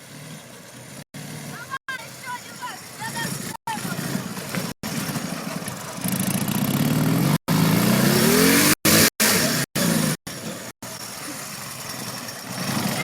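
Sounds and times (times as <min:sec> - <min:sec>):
motorcycle engine revving: 0:02.8 - 0:13.0.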